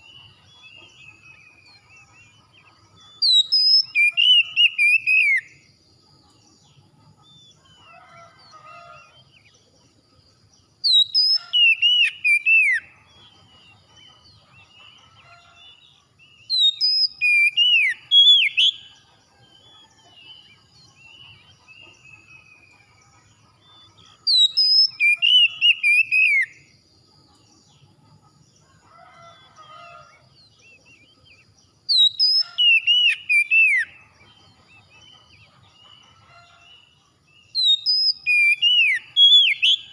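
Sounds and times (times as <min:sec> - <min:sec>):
songbird whistled phrases: 0:03.2 - 0:05.4, 0:10.9 - 0:12.9, 0:16.5 - 0:18.8, 0:24.3 - 0:26.5, 0:31.9 - 0:33.9, 0:37.6 - 0:39.9.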